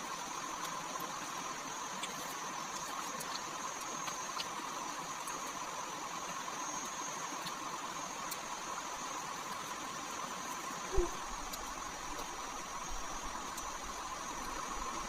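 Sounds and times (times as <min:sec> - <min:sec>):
faint ticks: 0:00.0 - 0:15.0
steady background hiss: 0:00.0 - 0:15.0
high-pitched hums: 0:10.9 - 0:11.6.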